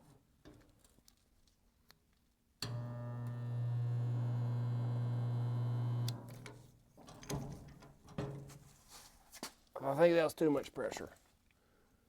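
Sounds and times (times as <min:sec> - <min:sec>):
spot welder humming: 0:02.6 - 0:06.5.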